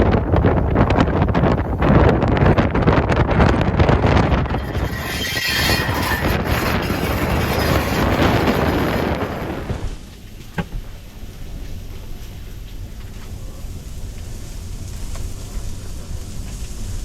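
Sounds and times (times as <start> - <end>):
wind on microphone: 0.0 - 10.0.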